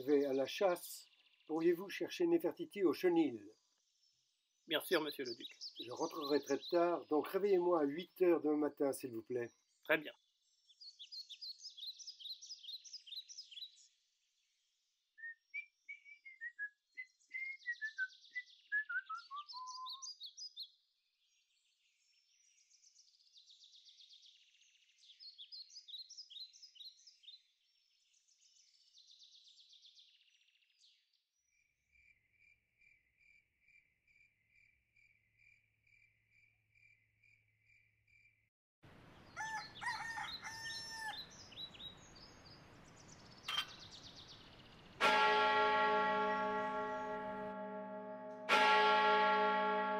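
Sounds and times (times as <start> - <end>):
songbirds singing: 0.0 - 36.1, 38.9 - 47.9
repeated single bird chirp: 4.7 - 7.0, 43.1 - 47.3
outdoor ambience: 31.5 - 49.9.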